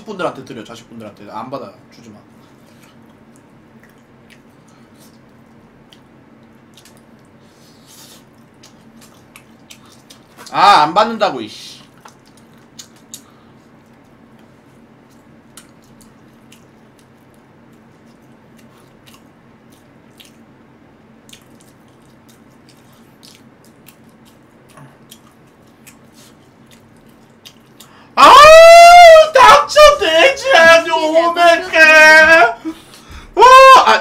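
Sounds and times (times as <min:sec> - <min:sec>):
low steady hum: 0:00.0 - 0:34.0
faint chewing with mouth clicks: 0:02.4 - 0:10.6, 0:11.8 - 0:28.2.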